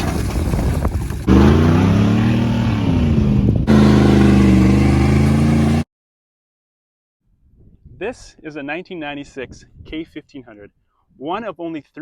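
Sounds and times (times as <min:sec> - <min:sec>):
loud truck engine revving: 0:01.3 - 0:05.9.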